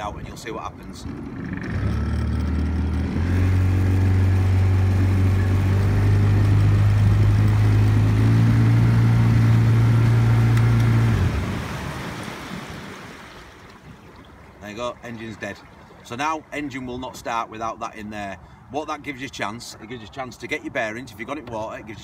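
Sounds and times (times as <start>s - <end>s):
wind: 0.0s - 22.0s
outboard motor running: 0.6s - 16.2s.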